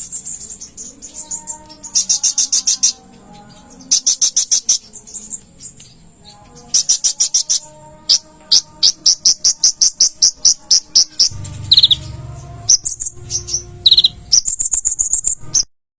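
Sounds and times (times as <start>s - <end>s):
high bird trills: 0.0s - 15.7s
small bird chirping: 0.0s - 15.7s
low hum: 11.1s - 15.7s.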